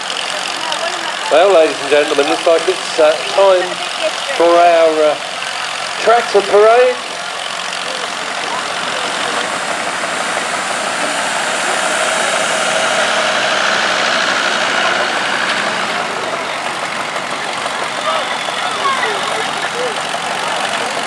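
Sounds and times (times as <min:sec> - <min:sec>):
tractor engines running: 0:00.0 - 0:21.0.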